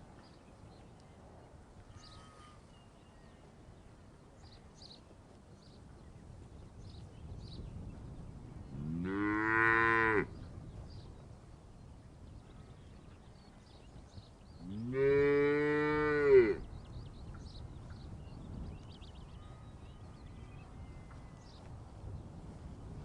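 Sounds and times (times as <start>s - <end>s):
cow mooing: 8.8s - 10.3s.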